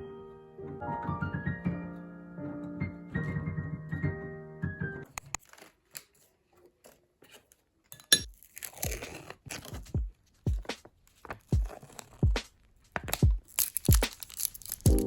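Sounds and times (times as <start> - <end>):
close crunching: 8.3 - 15.0.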